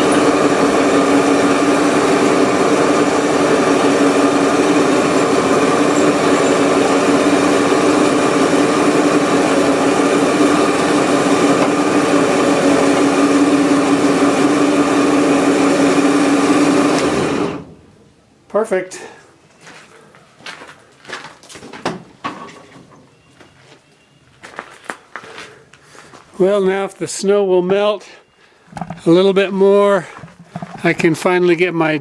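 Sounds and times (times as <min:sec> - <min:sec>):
electric chain hoist motor humming: 0:00.0 - 0:17.9.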